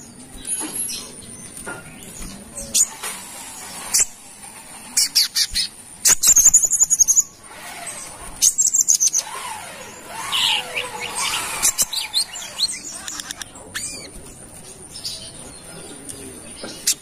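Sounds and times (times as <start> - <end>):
bird chips and trills: 0.0 - 17.0.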